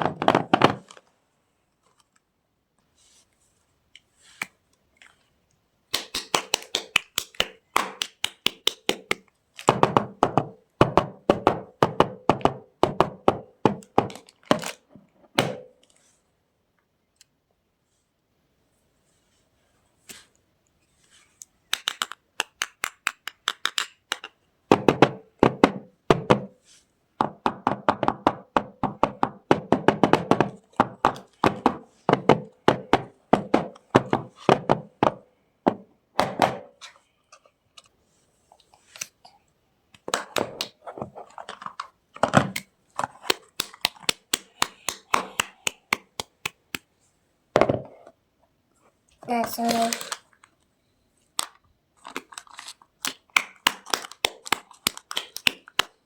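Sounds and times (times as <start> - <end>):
dry soap cracking: 51.4 - 56.0.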